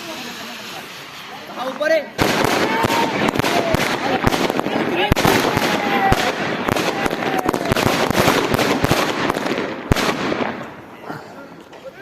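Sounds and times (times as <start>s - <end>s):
bonfire crackling and popping: 0.0s - 10.9s
loud crack: 2.1s - 10.8s.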